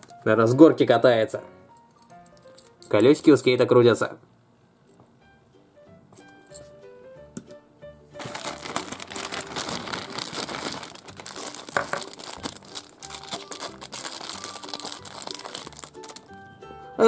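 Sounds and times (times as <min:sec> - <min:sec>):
plastic bag crinkling: 0:08.2 - 0:16.4.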